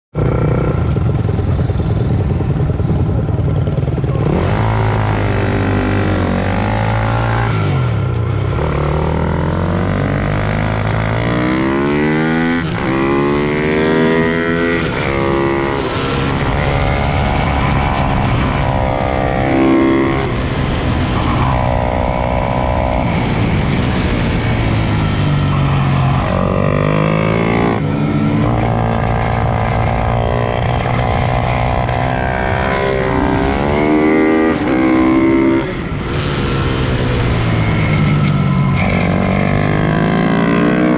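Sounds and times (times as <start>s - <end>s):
pit bike engines revving: 0.2s - 40.9s.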